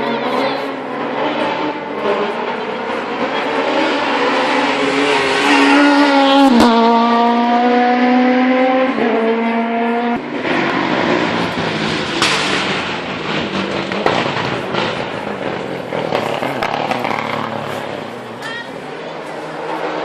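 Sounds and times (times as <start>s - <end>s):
rally car engine accelerating: 0.0s - 20.0s
loud rough noise with cracks: 11.5s - 18.6s.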